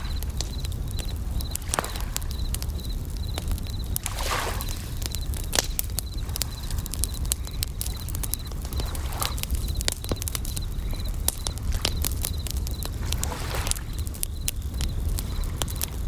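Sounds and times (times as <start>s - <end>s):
bell crickets trilling: 0.0s - 16.0s
campfire crackling and popping: 0.0s - 16.0s.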